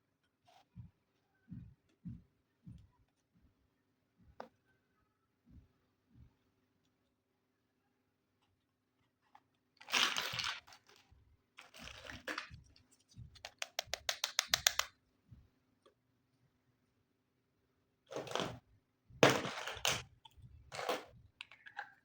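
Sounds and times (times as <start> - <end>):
plastic packaging crinkling: 9.8 - 12.5
sharp plastic clicks: 13.4 - 14.9.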